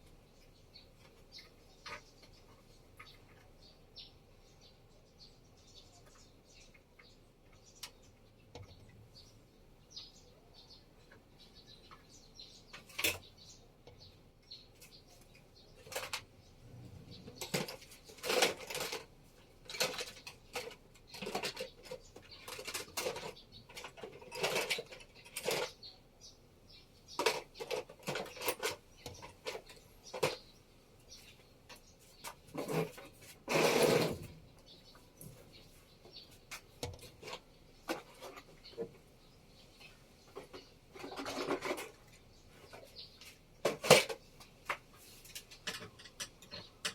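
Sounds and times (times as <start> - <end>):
small hard objects clattering: 17.4 - 25.9, 27.1 - 30.5, 40.3 - 46.9.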